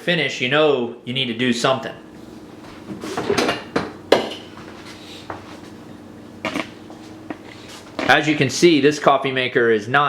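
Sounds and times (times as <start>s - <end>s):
faint steady hum: 0.0s - 10.0s
kitchen items knocking and clinking: 3.2s - 4.6s.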